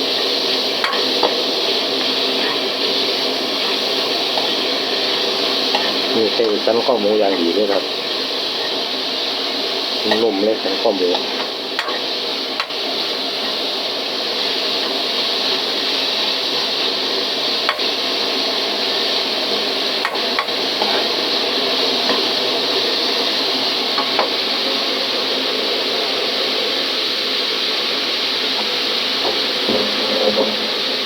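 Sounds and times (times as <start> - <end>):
meat sizzling in a pan: 0.0 - 31.0.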